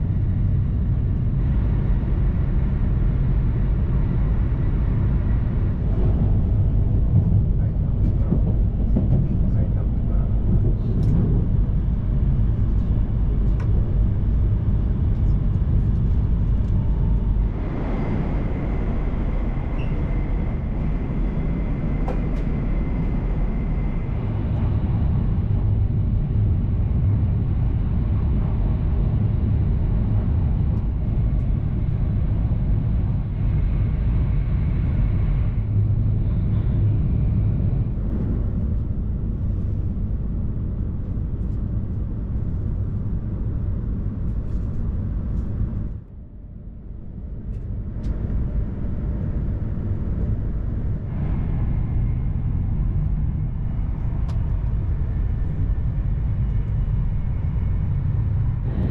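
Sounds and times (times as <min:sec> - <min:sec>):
train running at speed: 0:00.0 - 0:58.9
faint high whine: 0:17.4 - 0:24.7.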